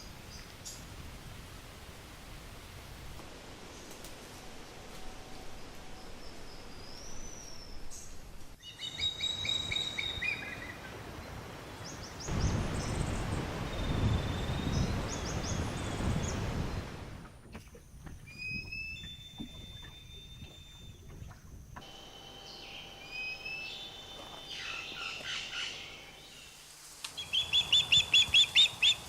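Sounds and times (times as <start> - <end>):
birds chirping: 18.2 - 26.6
birds whistling: 22.5 - 26.1.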